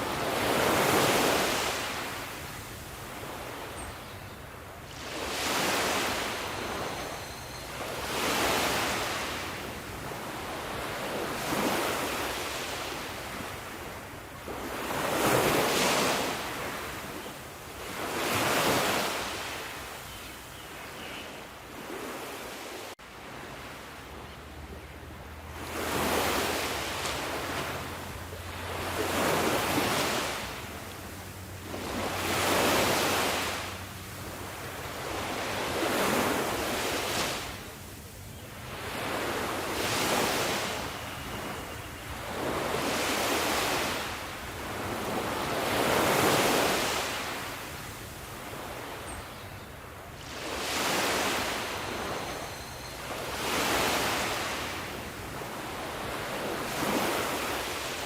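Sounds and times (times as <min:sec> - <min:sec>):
sea waves washing onto shore: 0:00.0 - 0:03.7, 0:25.3 - 0:41.5, 0:42.1 - 0:48.9.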